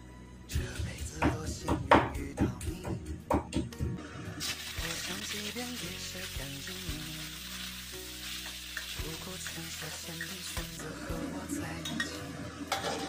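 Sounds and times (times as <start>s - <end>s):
meat sizzling in oil: 4.4s - 11.2s.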